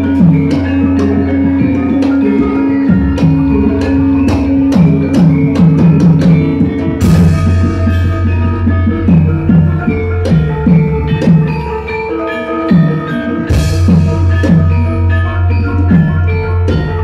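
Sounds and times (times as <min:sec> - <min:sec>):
drum strokes: 0:00.0 - 0:17.0
metallophones and gongs ringing: 0:00.0 - 0:17.0.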